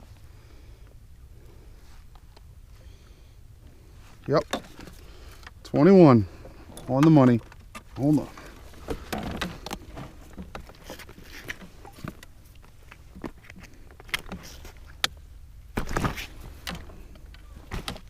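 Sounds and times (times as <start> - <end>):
low steady rumble: 0.0 - 18.0
rustle: 0.0 - 18.0
fishing gear clicks and knocks: 4.2 - 18.0.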